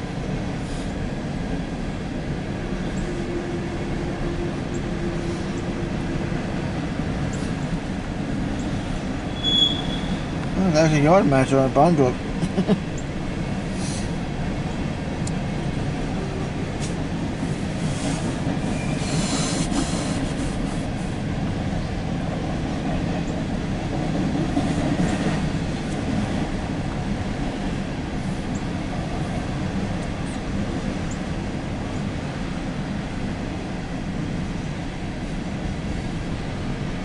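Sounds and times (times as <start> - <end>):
train wheels on rail: 0.0 - 37.0
high wheel squeals: 9.2 - 10.3, 18.7 - 19.6.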